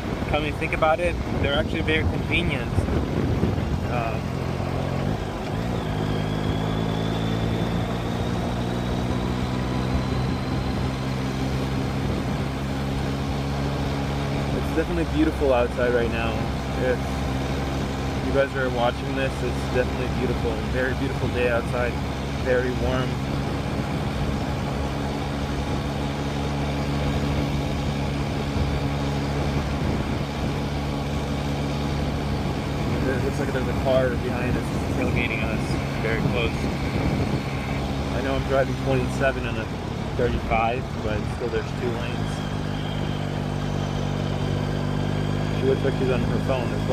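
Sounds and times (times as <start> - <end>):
wind noise on microphone: 0.0 - 4.4, 11.7 - 12.7, 23.0 - 26.0, 27.0 - 38.1
motorcycle engine running: 0.0 - 46.9.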